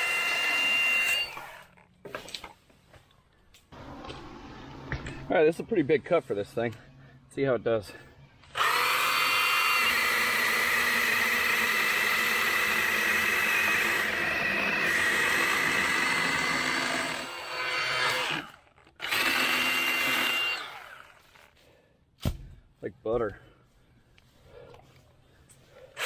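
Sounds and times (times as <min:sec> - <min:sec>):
mini chainsaw cutting wood: 0:00.0 - 0:01.8, 0:08.5 - 0:21.6.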